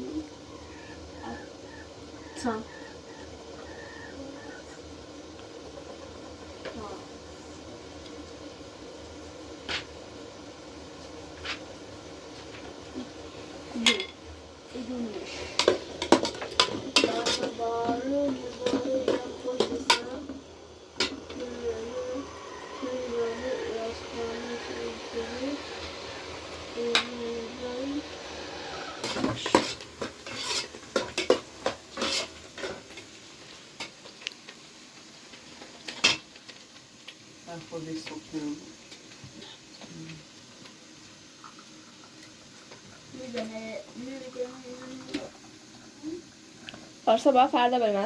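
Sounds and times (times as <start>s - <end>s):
hand tool scraping hard surface: 29.0s - 32.4s.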